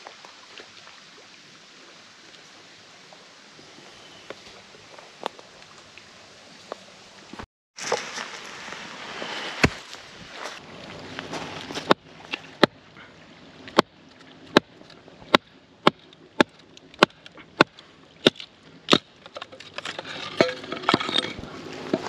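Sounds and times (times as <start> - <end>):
wood being chopped: 9.6 - 9.8, 15.3 - 19.1.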